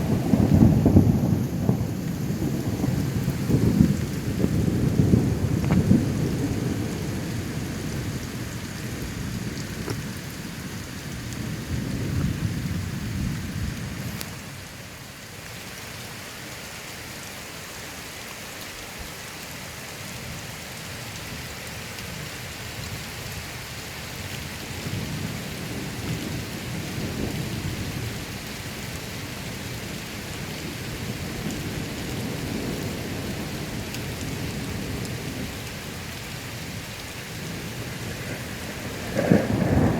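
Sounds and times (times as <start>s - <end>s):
rolling thunder: 0.0s - 14.0s, 37.4s - 39.9s
steady rain: 0.0s - 39.9s.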